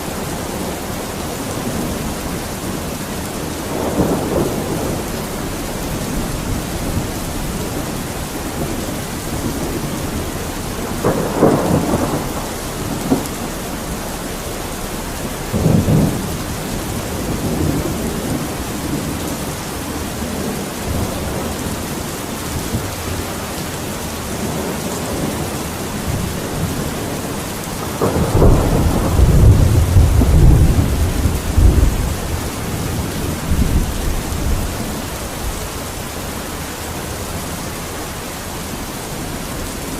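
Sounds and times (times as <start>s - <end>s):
low rumbles: 0.0s - 23.0s
steady rain: 0.0s - 39.9s.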